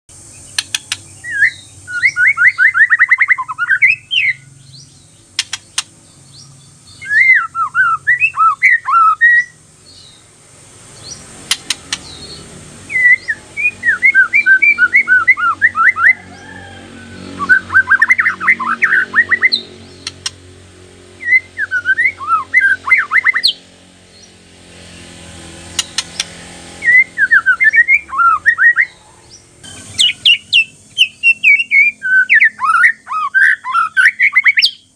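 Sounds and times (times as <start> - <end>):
bird singing whistled notes: 0.2 - 10.3, 11.0 - 20.4, 21.2 - 24.3, 25.8 - 34.9
sharp clicks: 0.5 - 1.1, 5.3 - 6.0, 11.4 - 12.2, 20.0 - 20.4, 25.7 - 26.4.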